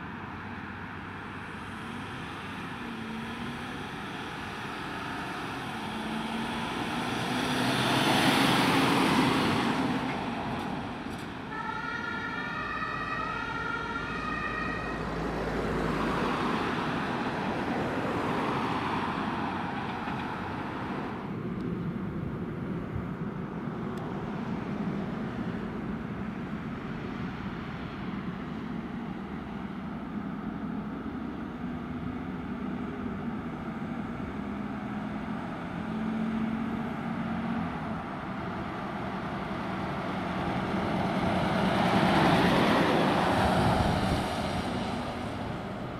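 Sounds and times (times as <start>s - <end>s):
street traffic with passing vehicles: 0.0s - 45.9s
two-tone siren: 11.5s - 15.7s.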